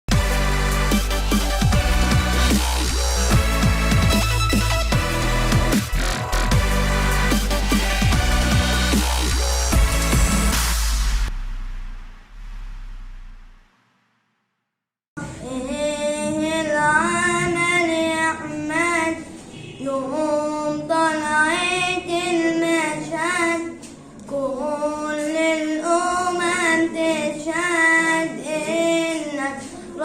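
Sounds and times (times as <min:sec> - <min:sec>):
boy singing solo: 0:15.2 - 0:30.0.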